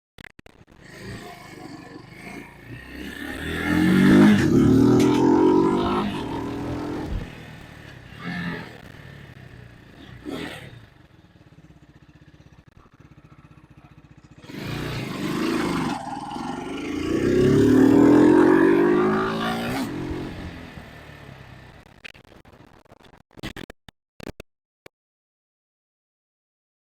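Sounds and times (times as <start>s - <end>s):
motorcycle engine revving: 0.6s - 22.0s.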